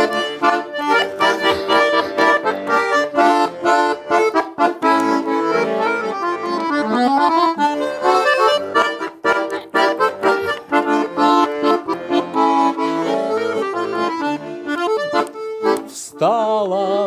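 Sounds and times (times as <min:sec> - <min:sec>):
button accordion melody: 0:00.0 - 0:17.0.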